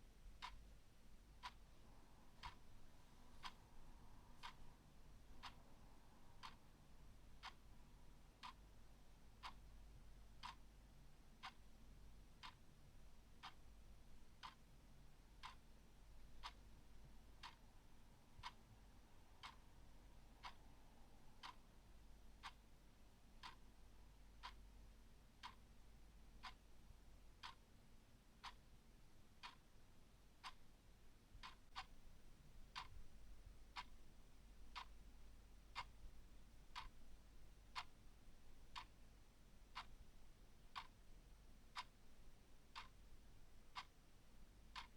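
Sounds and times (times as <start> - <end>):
clock ticking: 0.2 - 17.7, 18.4 - 18.7, 19.4 - 19.8, 20.4 - 20.8, 21.4 - 21.7, 22.4 - 24.8, 25.4 - 25.8, 26.4 - 26.7, 27.4 - 27.7, 28.4 - 28.7, 29.4 - 29.7, 30.4 - 30.7, 31.4 - 44.9.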